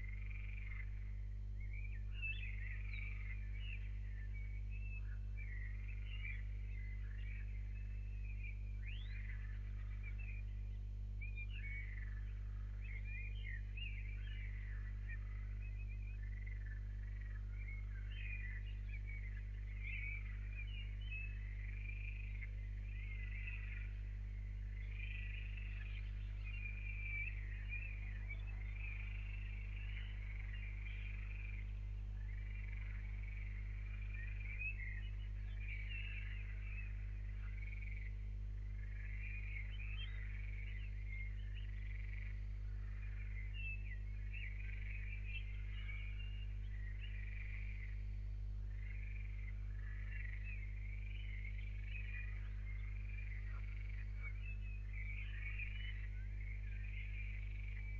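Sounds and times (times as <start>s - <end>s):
low electrical hum: 0.0s - 57.9s
birds chirping and calling: 11.3s - 48.1s, 48.7s - 57.9s.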